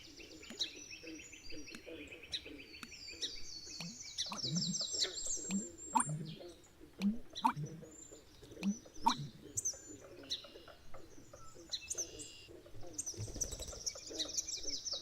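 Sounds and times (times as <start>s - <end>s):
birds chirping and twittering: 0.0s - 15.0s
low bird notes in pairs: 0.0s - 15.0s.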